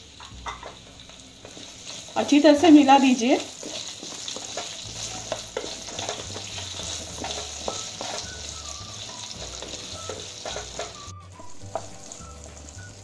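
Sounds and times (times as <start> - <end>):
potatoes sizzling in hot oil: 0.0 - 13.0
spatula scraping and tapping pan: 3.4 - 12.1.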